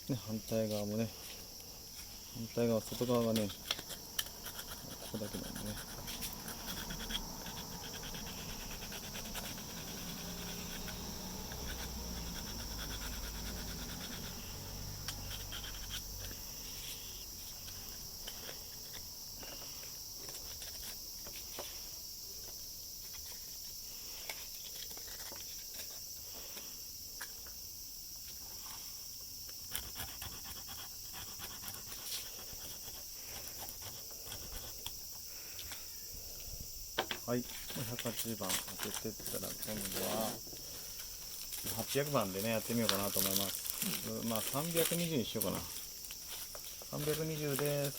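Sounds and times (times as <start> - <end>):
sandpaper rubbing on plastic: 2.9 - 17.1, 29.7 - 34.7.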